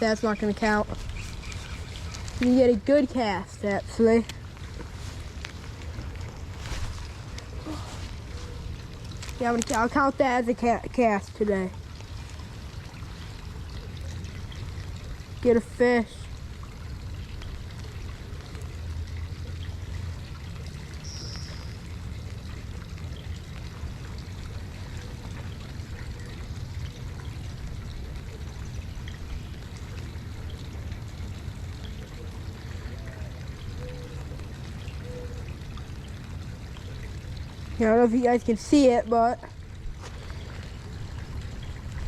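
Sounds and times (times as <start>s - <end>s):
water rushing: 0.0s - 21.1s, 21.7s - 42.0s
low rumble: 4.9s - 9.2s.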